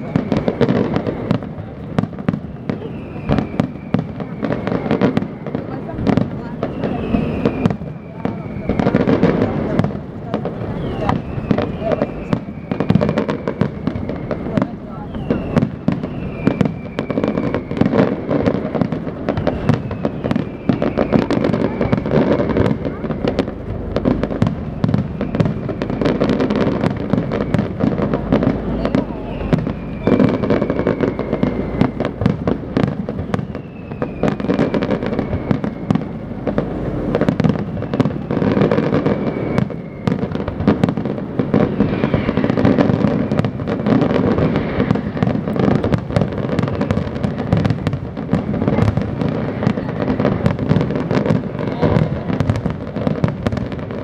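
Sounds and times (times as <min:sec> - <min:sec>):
falling firework whistle: 0:00.0 - 0:54.0
fireworks crackling and banging: 0:00.0 - 0:54.0.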